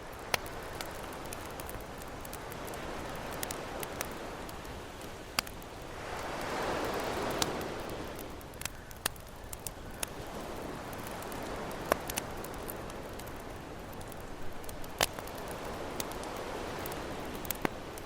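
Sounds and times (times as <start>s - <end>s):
campfire crackling and popping: 0.0s - 18.0s
ocean waves: 5.4s - 8.6s.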